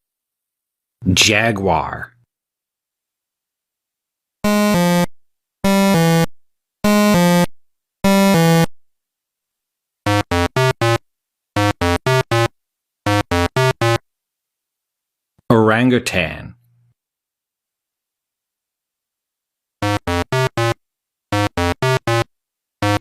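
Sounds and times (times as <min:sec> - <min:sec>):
buzzy synthesizer tones: 0:10.1 - 0:11.0, 0:11.6 - 0:12.5, 0:13.1 - 0:14.0, 0:19.8 - 0:23.0.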